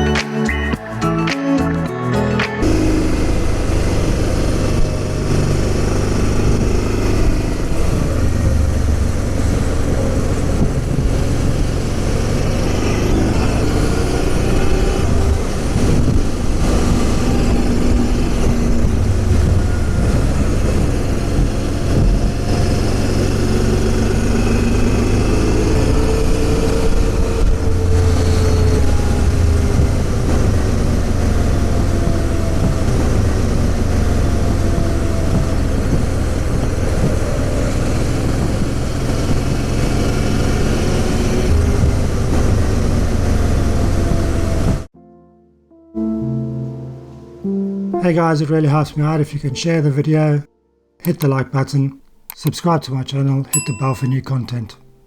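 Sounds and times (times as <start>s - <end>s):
motorcycle engine running: 2.6s - 44.9s
road and wind noise: 2.6s - 45.0s.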